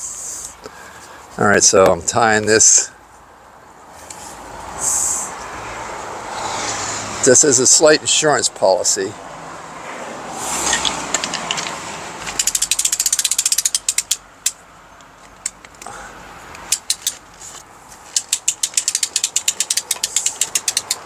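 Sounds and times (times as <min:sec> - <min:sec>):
umbrella crank ratchet clicking: 0:10.7 - 0:15.9, 0:16.5 - 0:21.0.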